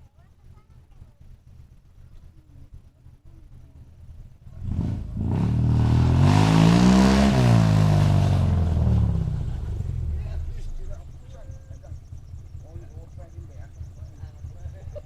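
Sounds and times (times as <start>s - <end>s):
car engine revving: 4.3s - 15.0s.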